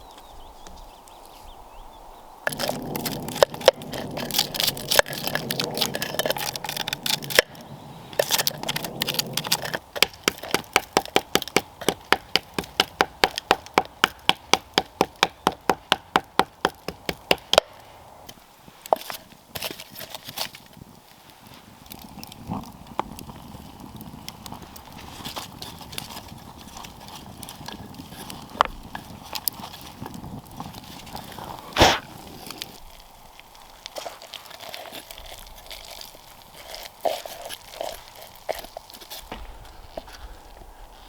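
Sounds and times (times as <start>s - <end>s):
scraping and crackling work noise: 2.4s - 41.0s
wood being struck: 9.9s - 17.8s, 39.2s - 40.8s.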